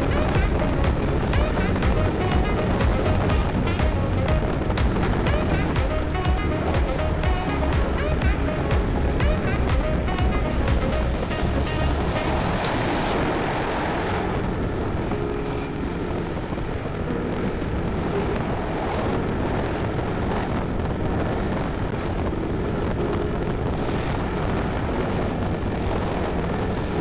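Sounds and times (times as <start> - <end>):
scooter engine: 0.0 - 12.6
wind rumble on microphone: 0.0 - 27.0.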